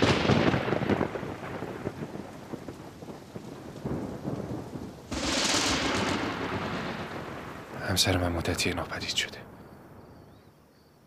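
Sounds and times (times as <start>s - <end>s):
thunder: 0.0s - 8.0s
rain falling steadily: 0.0s - 11.0s.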